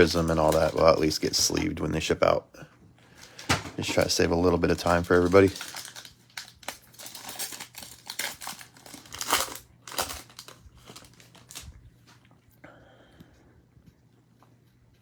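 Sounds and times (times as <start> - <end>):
plastic wrapper tearing and crinkling: 0.0 - 1.8, 3.2 - 11.8.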